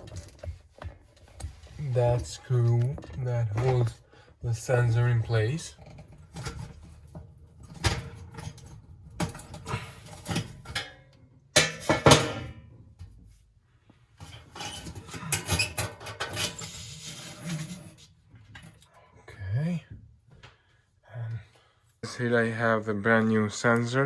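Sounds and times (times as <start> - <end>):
metal clatter: 5.8 - 12.6.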